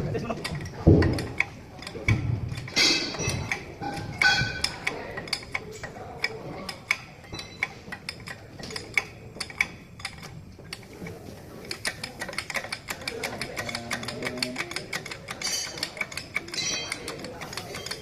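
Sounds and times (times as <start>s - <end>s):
metal hand tools clicking: 11.7s - 18.0s.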